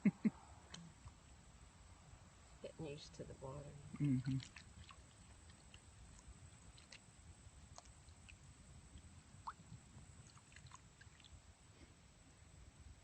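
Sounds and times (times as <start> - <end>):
faint small ticks: 4.4 - 7.1, 7.7 - 11.4.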